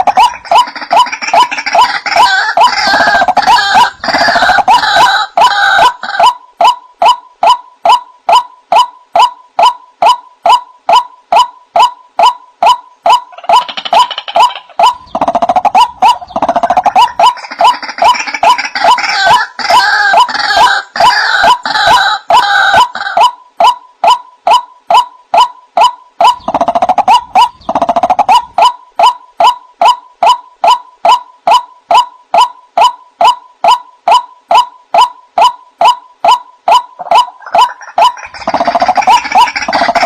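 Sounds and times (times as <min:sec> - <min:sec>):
harsh rapid croaking chatter: 0:00.0 - 0:06.4, 0:12.6 - 0:23.3, 0:25.4 - 0:29.2, 0:29.8 - 0:40.0.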